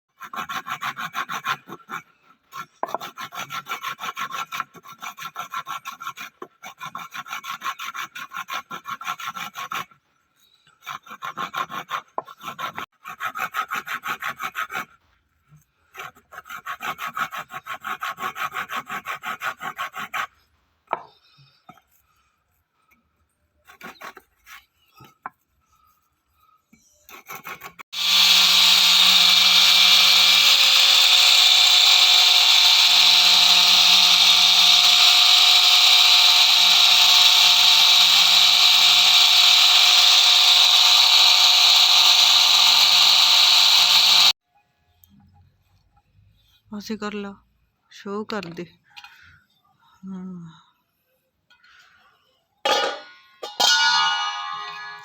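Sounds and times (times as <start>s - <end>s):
hand tool strokes on wood: 27.1s - 44.4s
power tool running: 27.9s - 44.4s.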